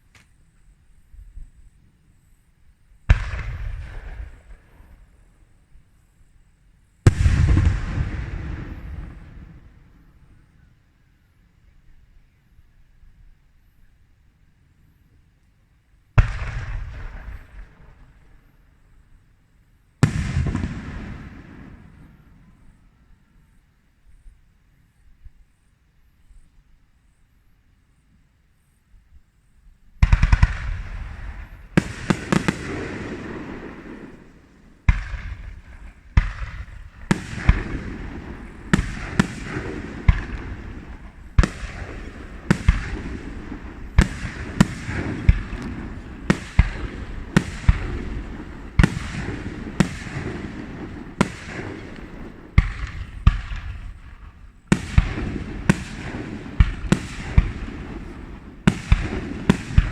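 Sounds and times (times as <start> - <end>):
fireworks crackle and rumble: 0.0 - 10.9, 15.1 - 25.7, 27.9 - 59.9
fireworks bangs: 3.0 - 5.4, 7.0 - 10.4, 16.2 - 18.5, 20.0 - 22.9, 30.0 - 59.9.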